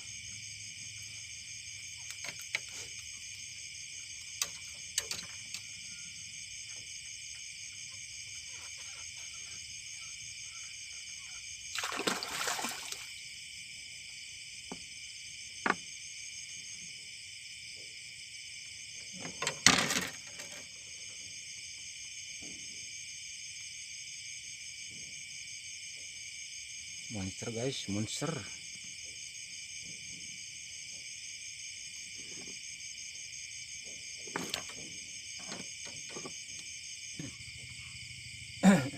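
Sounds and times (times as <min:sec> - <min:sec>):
high-pitched insect chorus: 0:00.0 - 0:38.9
water splashes: 0:11.7 - 0:13.1.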